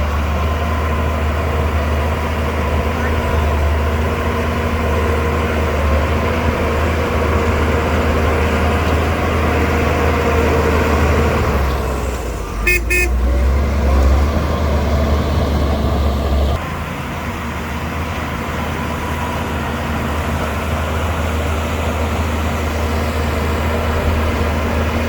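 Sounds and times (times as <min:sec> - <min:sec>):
bulldozer diesel engine droning: 0:00.0 - 0:25.0
horn short beeps: 0:12.6 - 0:13.3.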